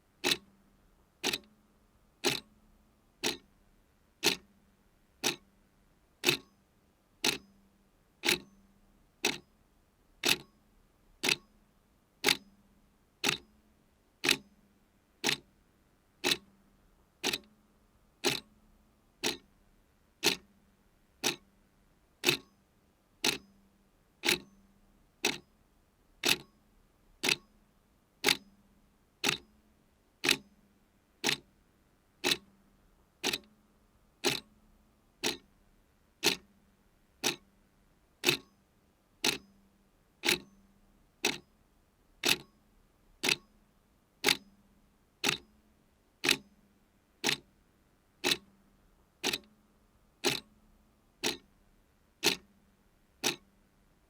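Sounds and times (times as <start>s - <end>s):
clock ticking: 0.2s - 0.4s, 1.2s - 1.5s, 2.2s - 2.5s, 3.2s - 3.4s, 4.2s - 4.4s, 5.2s - 5.4s, 6.2s - 6.5s, 7.2s - 7.4s, 10.2s - 10.5s, 11.2s - 11.4s, 13.2s - 13.4s, 14.2s - 14.4s, 15.2s - 15.4s, 16.2s - 16.4s, 17.2s - 17.5s, 18.2s - 18.5s, 19.2s - 19.4s, 20.2s - 20.4s, 21.2s - 21.4s, 22.2s - 22.5s, 23.2s - 23.4s, 24.2s - 24.5s, 26.2s - 26.5s, 27.2s - 27.4s, 29.2s - 29.4s, 30.2s - 30.4s, 31.2s - 31.4s, 32.2s - 32.5s, 33.2s - 33.5s, 34.2s - 34.5s, 35.2s - 35.5s, 36.2s - 36.5s, 37.2s - 37.4s, 38.2s - 38.5s, 39.2s - 39.4s, 40.2s - 40.5s, 41.2s - 41.4s, 42.2s - 42.5s, 43.2s - 43.5s, 44.2s - 44.4s, 45.2s - 45.4s, 46.2s - 46.4s, 47.2s - 47.4s, 48.2s - 48.5s, 49.2s - 49.5s, 50.2s - 50.5s, 51.2s - 51.5s, 52.2s - 52.5s, 53.2s - 53.5s.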